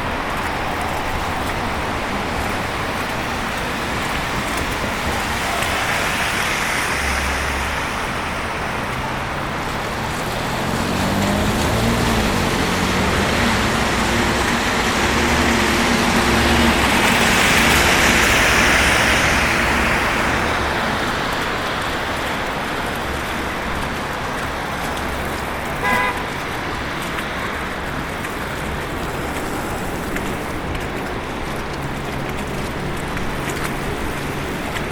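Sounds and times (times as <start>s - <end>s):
cars driving past: 0.0s - 34.9s
car horn toot: 25.8s - 26.4s.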